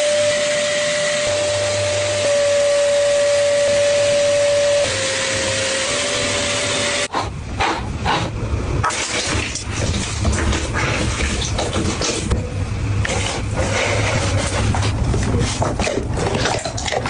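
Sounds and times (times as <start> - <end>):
small motor whining: 0.0 - 7.1
rubbing and rustling: 13.0 - 17.0.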